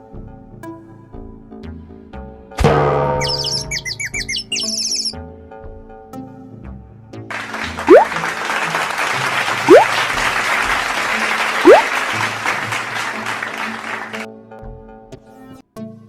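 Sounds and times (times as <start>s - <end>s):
light background music: 0.0s - 16.0s
short rising whistles: 3.2s - 5.2s
applause: 7.3s - 14.3s.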